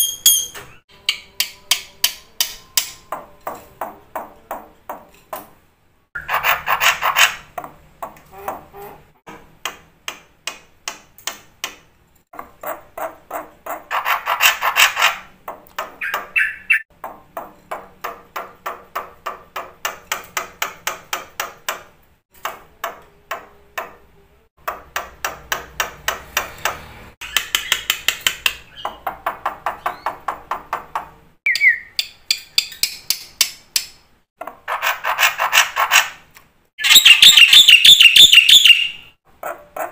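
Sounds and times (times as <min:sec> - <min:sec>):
bird singing ringing notes: 0:00.0 - 0:01.7, 0:16.0 - 0:16.9, 0:31.5 - 0:32.9, 0:36.8 - 0:39.2.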